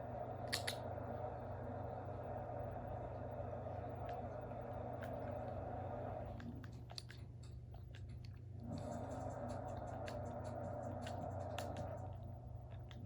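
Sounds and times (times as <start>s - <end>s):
steady background hum: 0.0s - 13.0s
puppy chewing: 3.9s - 13.0s.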